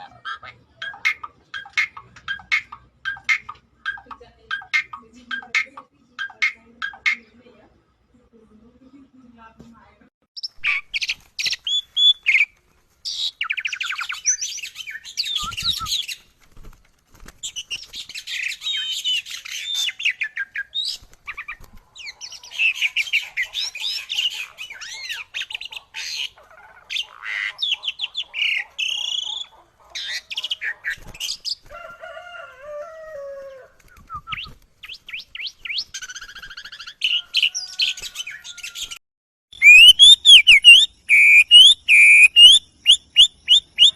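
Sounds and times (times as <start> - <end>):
songbirds chirping and singing: 10.4 - 32.2, 33.2 - 39.0, 39.6 - 43.9
low slow bird call: 39.6 - 43.9.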